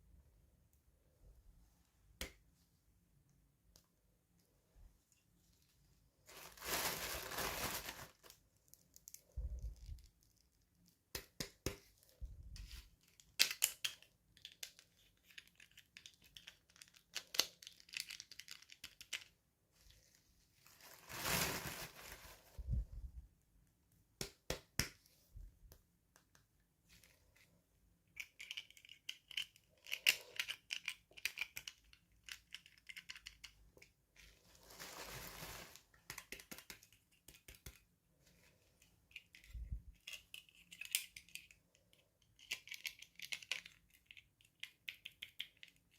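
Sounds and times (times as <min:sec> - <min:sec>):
packaging crinkling: 0:06.3 - 0:09.2, 0:20.6 - 0:22.6.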